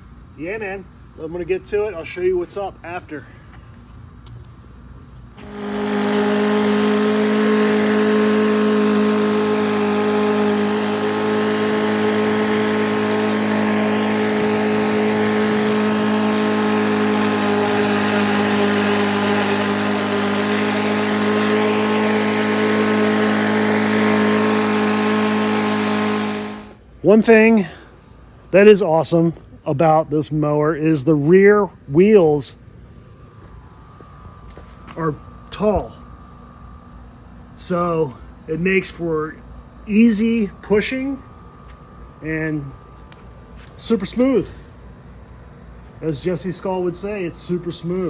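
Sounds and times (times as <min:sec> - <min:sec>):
lawn mower engine mowing grass: 0:05.1 - 0:26.8, 0:38.8 - 0:48.0.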